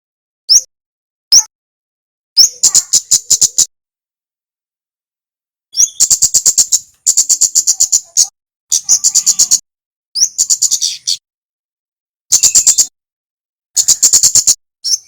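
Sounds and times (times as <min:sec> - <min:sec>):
bird singing high ticking notes: 0:02.4 - 0:03.7, 0:05.7 - 0:09.6, 0:10.2 - 0:11.2, 0:12.3 - 0:13.0, 0:13.8 - 0:15.0.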